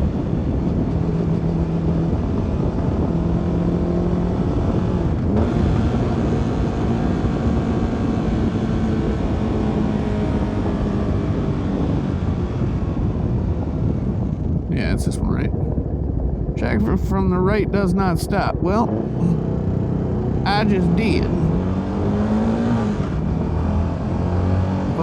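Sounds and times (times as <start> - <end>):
wind rush: 10.1 - 25.0.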